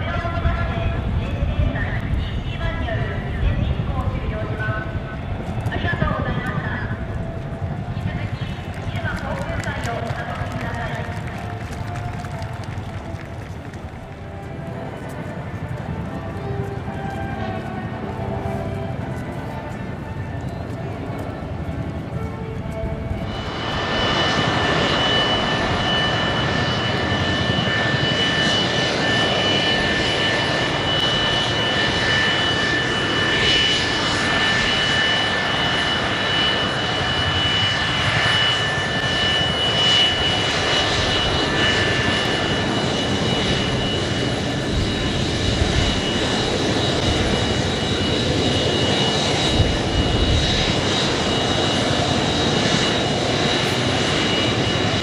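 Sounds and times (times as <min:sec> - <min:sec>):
high jet whine: 0:00.0 - 0:55.0
jet engines roaring: 0:00.0 - 0:55.0
higher whine tone: 0:11.5 - 0:55.0.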